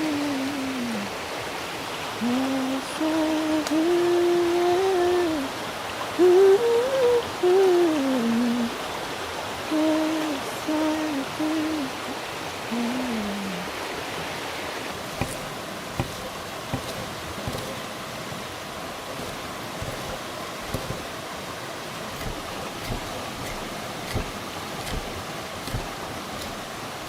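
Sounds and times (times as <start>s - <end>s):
rushing water: 0.0s - 27.0s
sharp clicks and knocks: 15.2s - 17.9s, 19.1s - 21.1s, 22.1s - 26.7s.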